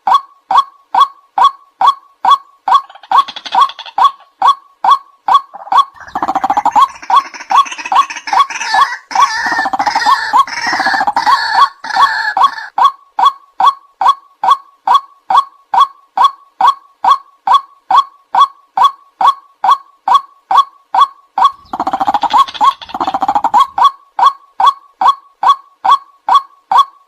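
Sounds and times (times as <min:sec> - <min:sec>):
waterhen kwak calls: 0:01.0 - 0:13.3, 0:21.4 - 0:24.3
chorus of waterhen calls: 0:05.6 - 0:12.7.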